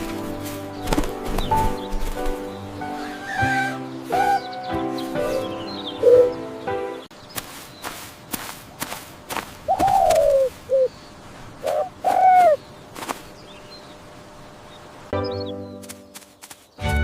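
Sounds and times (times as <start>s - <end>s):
music: 0.0s - 7.1s, 15.2s - 17.0s
bird calling: 0.0s - 16.8s.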